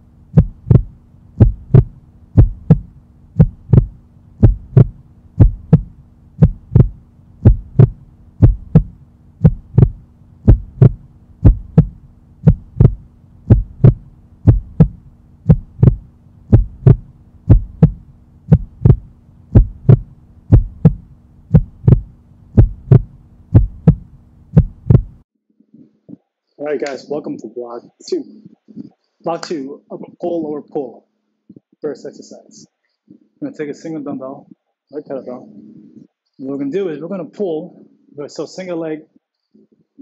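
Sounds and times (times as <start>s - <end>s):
heartbeat thumps: 0.0s - 25.2s
low hum: 0.0s - 26.2s.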